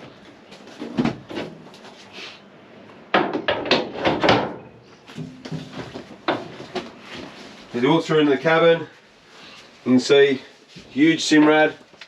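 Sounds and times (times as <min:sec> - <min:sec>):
sharp knocks and clatter: 0:03.1 - 0:07.0.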